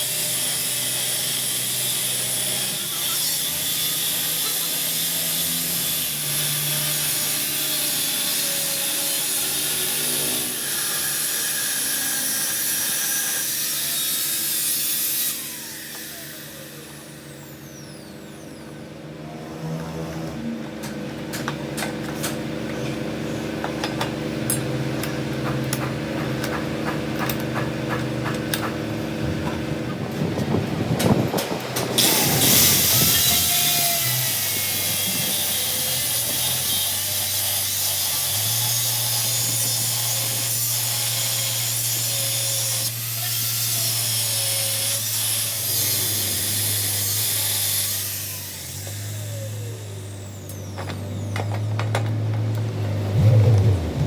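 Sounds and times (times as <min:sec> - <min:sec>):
power tool hissing on metal: 0:32.0 - 0:51.3
machine hum: 0:49.3 - 0:54.0.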